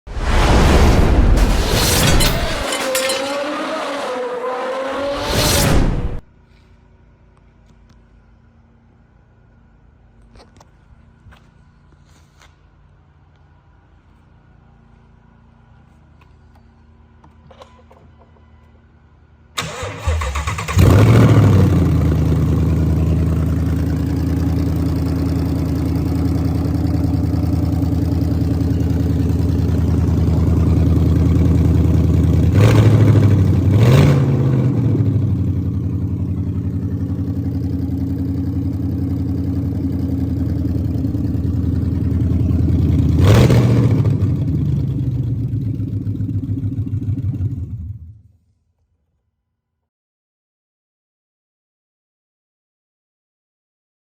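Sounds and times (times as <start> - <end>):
engine idling and revving: 1.4 - 6.2, 19.6 - 48.3.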